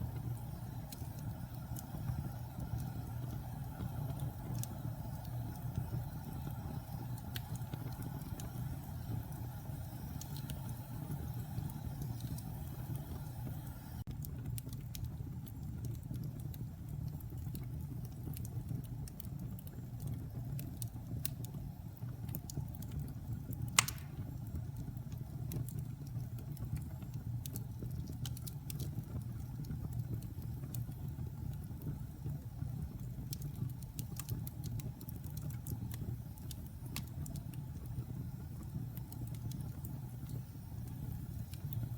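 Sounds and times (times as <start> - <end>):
fire flames rumbling: 0.0 - 41.9
small fire crackles: 0.0 - 41.9
loud sharp pop: 23.8 - 24.2.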